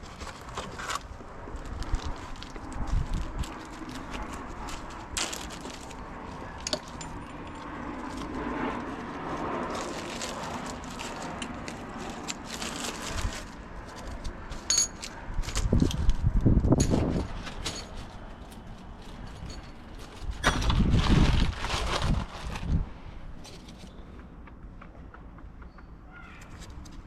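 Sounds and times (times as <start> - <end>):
hand tools and metal parts rattling: 0.0 - 20.9.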